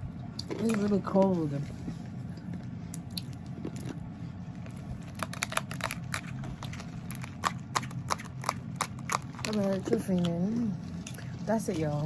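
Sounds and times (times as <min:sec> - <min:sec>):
person chewing ice crunchily: 0:03.0 - 0:11.6.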